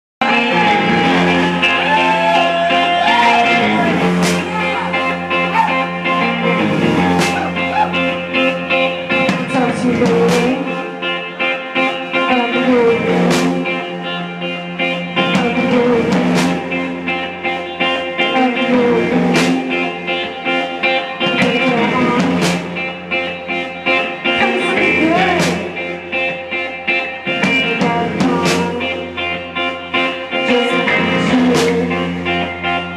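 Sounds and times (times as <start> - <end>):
drums: 0.2 - 32.9
electric guitar: 0.2 - 32.9.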